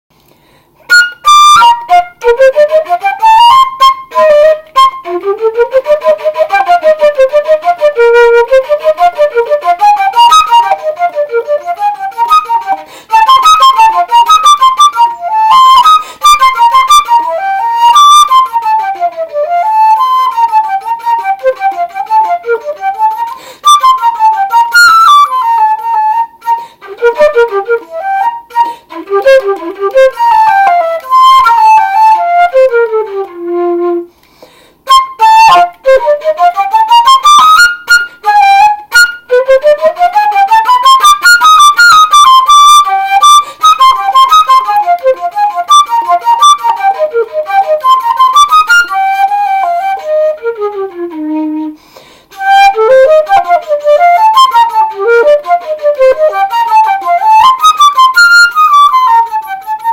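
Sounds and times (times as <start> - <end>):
woodwind instrument playing: 0.6 - 59.9
player breathing: 12.8 - 13.1, 34.1 - 34.8, 51.8 - 52.3.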